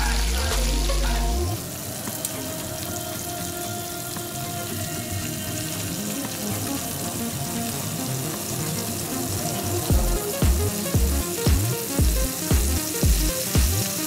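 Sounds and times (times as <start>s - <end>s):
background music with deep beat: 0.0s - 1.6s, 9.7s - 14.0s
beef sizzling in hot oil: 0.0s - 14.0s.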